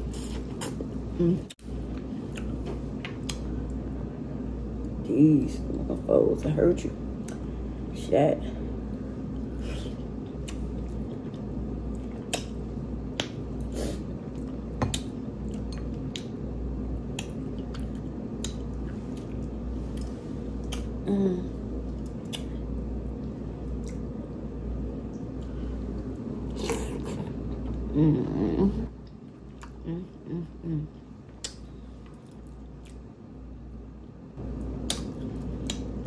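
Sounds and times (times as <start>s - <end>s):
steady low hum: 0.0s - 36.0s
wet squishing mouth sounds: 34.8s - 36.0s.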